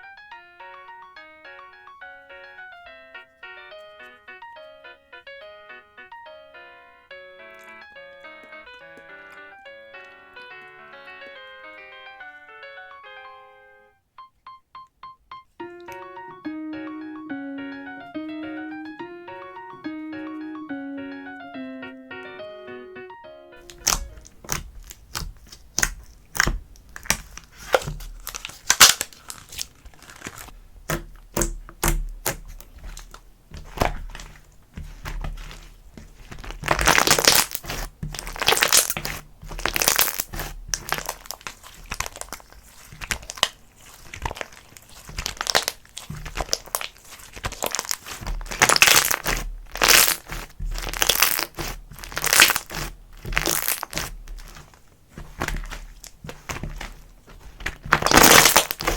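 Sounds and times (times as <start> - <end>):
slime squished by hand popping: 23.6 - 58.9.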